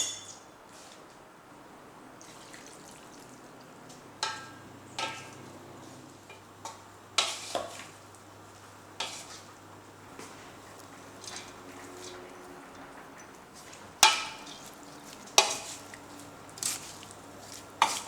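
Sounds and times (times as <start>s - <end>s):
utensil clinking against pan: 0.0s - 0.4s, 4.2s - 5.4s, 14.0s - 14.7s.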